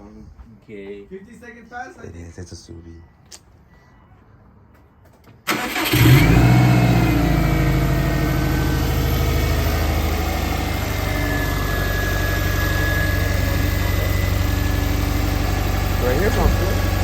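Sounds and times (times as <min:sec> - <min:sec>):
starter motor cranking: 0:05.5 - 0:06.6
car engine starting and idling: 0:05.5 - 0:17.0.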